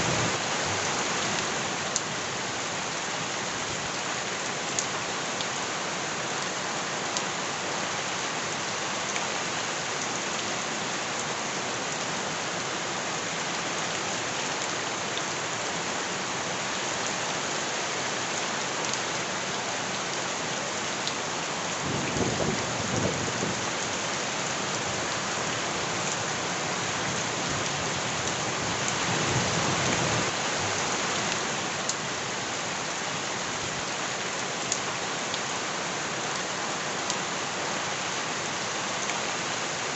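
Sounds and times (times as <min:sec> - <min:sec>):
heavy rain pattering: 0:18.2 - 0:37.8.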